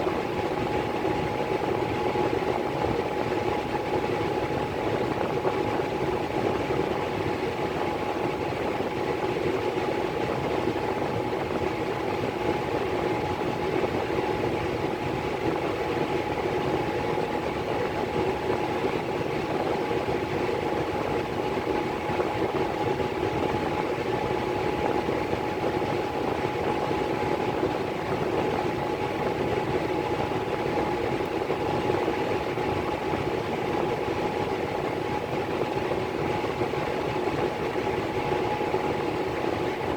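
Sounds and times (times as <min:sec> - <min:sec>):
furnace blower whirring: 0:20.0 - 0:39.9.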